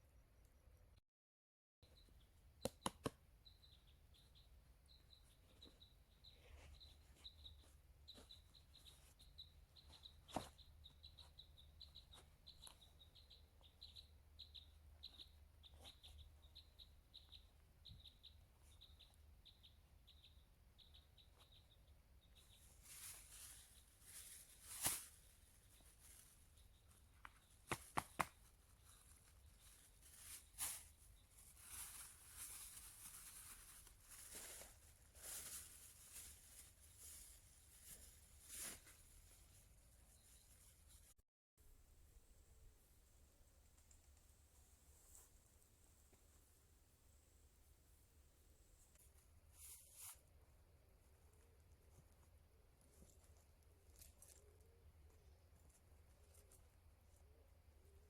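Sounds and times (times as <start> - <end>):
small bird chirping: 1.8 - 41.2.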